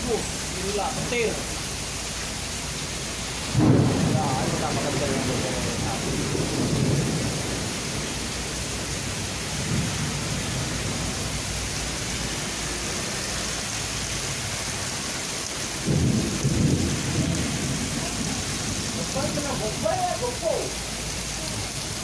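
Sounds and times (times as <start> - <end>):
heavy rain: 0.0 - 22.0
thunder rumbling: 3.1 - 12.2, 15.7 - 20.4.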